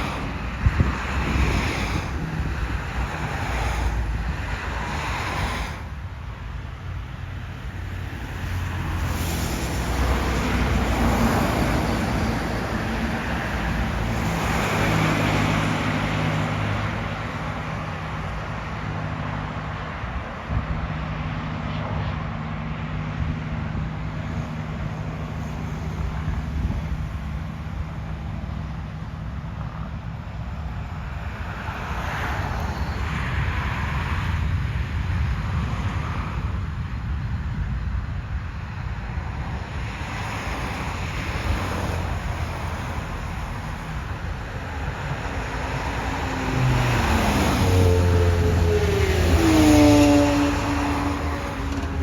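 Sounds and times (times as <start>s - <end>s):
road traffic passing: 0.0s - 52.0s
vehicle passing close: 40.5s - 52.0s.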